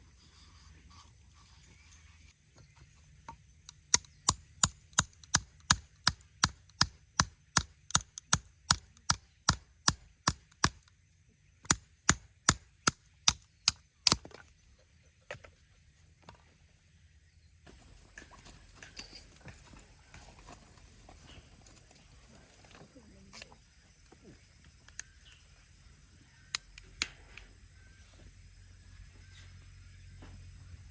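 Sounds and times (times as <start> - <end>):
tool striking wood: 3.3 - 10.8.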